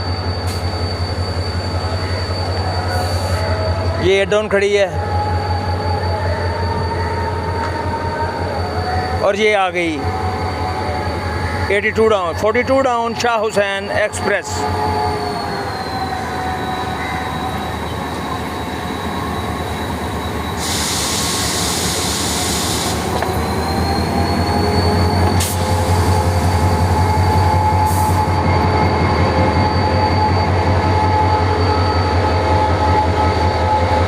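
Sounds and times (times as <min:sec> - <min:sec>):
train wheel squeal: 0:00.0 - 0:34.0
hiss: 0:20.6 - 0:23.1, 0:25.4 - 0:26.8.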